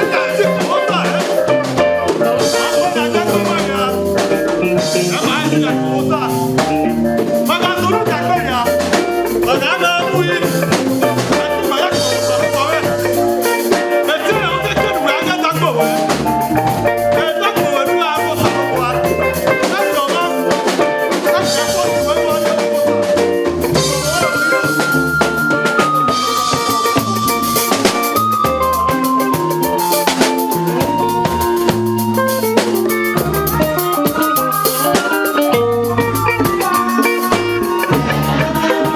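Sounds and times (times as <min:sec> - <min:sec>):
people singing: 0:00.0 - 0:01.6, 0:17.3 - 0:25.2, 0:34.1 - 0:38.9
worship band playing: 0:00.0 - 0:38.9.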